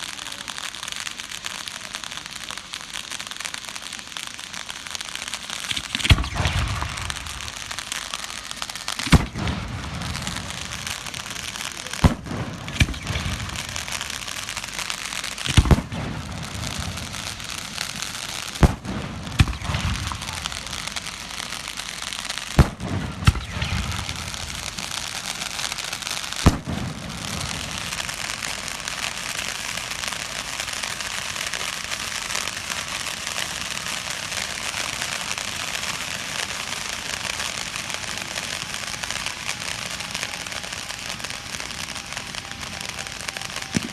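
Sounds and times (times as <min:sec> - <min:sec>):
dense firework crackling: 0:00.0 - 0:43.9
firework bangs with rumble: 0:05.6 - 0:08.2, 0:08.9 - 0:11.4, 0:12.0 - 0:14.6, 0:15.3 - 0:21.2, 0:22.5 - 0:25.6, 0:26.4 - 0:28.7.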